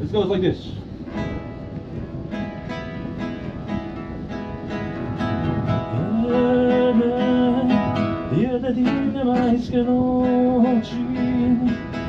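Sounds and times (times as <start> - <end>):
acoustic guitar strumming: 1.0 - 12.0.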